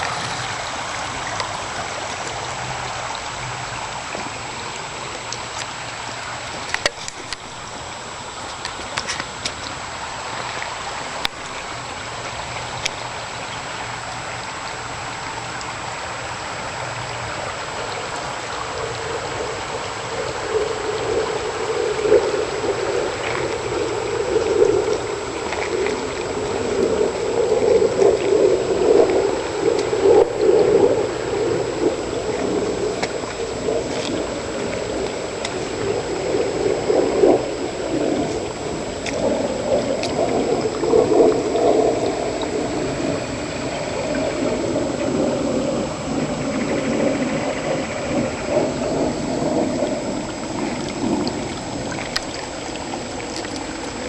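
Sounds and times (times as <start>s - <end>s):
floodwater rushing and gurgling: 0.0s - 54.0s.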